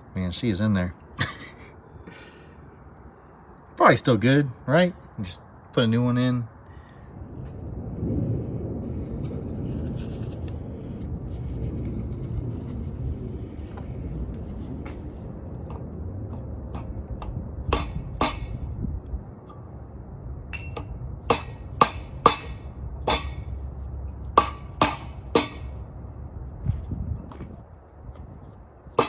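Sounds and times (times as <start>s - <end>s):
steady low hum: 0.0s - 28.9s
hammer striking metal: 17.7s - 18.6s, 20.6s - 23.5s, 24.4s - 25.8s.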